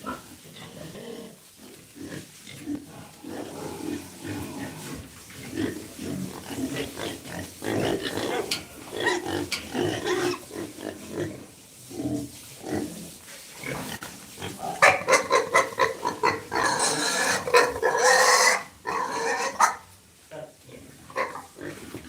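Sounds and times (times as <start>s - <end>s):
pigs grunting: 0.0s - 19.8s, 20.7s - 22.0s
pigs squealing: 3.0s - 11.4s, 13.8s - 19.8s, 21.1s - 21.8s.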